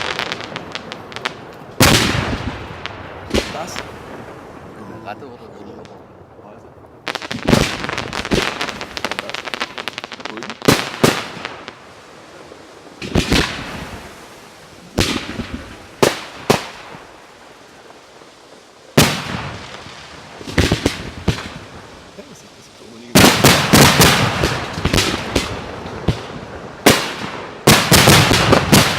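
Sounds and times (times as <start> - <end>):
fireworks crackle: 0.0 - 28.9
firework shells banging: 23.1 - 28.9.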